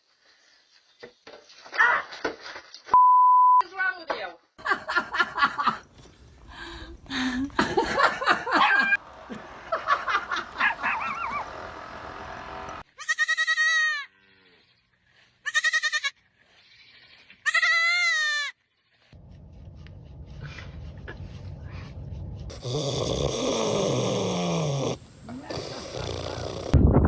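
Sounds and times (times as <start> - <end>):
high quavering bleats: 12.9 - 14.7, 15.5 - 18.6.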